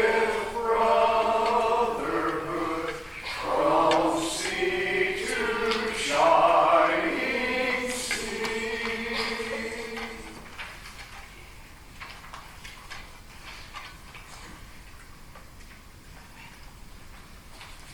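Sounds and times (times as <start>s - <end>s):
congregation singing: 0.0s - 10.8s.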